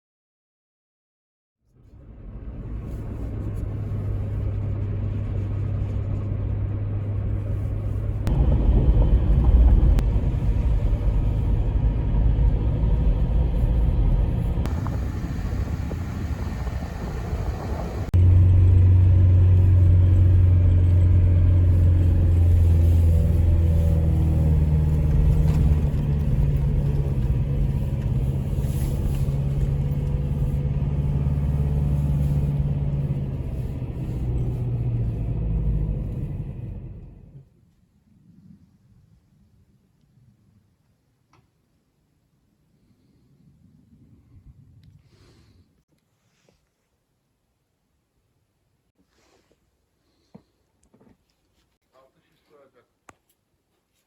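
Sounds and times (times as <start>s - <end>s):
vehicle engine humming: 1.8s - 37.5s.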